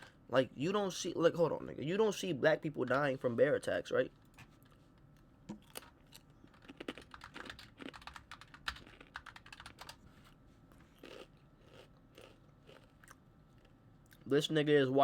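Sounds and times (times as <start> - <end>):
typing on keyboard: 6.5 - 10.0.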